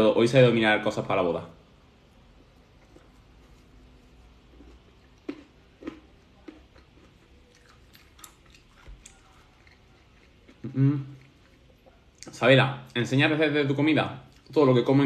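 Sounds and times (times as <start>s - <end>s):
person chewing salad: 2.3s - 13.0s.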